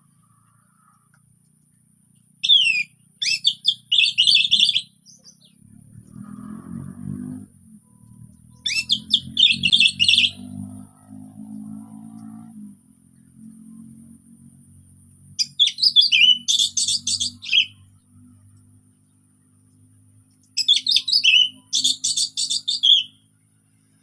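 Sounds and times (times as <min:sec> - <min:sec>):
low hum: 0:00.0 - 0:04.3, 0:05.0 - 0:15.8.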